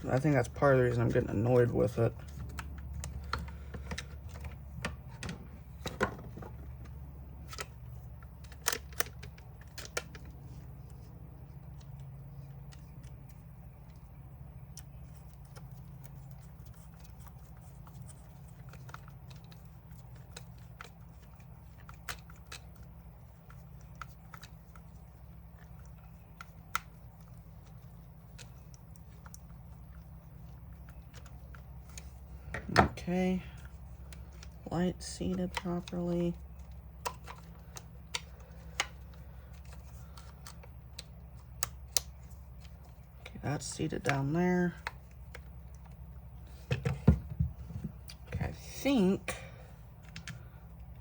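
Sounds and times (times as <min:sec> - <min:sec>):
steady low hum: 0:00.0 - 0:51.0
plastic parts clicking and tapping: 0:02.2 - 0:10.4, 0:33.6 - 0:48.2.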